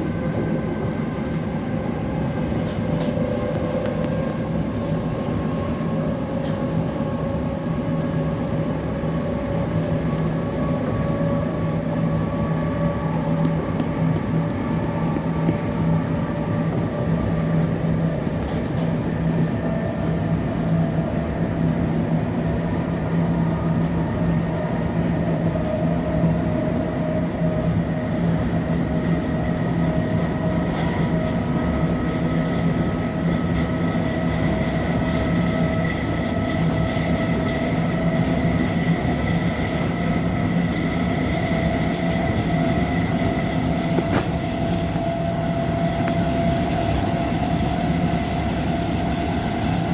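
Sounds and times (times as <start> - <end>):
train wheels rumbling on rail: 0.0 - 49.9
traction motor whine: 40.4 - 49.9.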